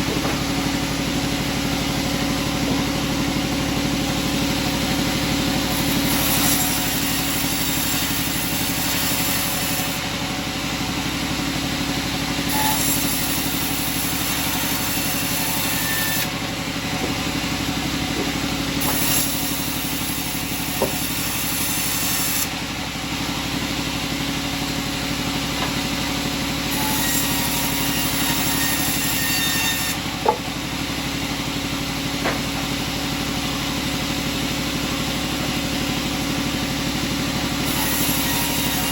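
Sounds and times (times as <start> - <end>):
sawmill engine running: 0.0 - 38.9
sharp knocks: 20.7 - 21.2, 30.2 - 30.6, 32.2 - 32.6.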